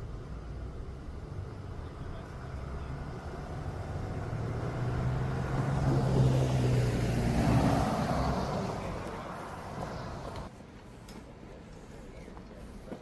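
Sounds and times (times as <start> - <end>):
vehicle driving past: 2.8 - 10.4.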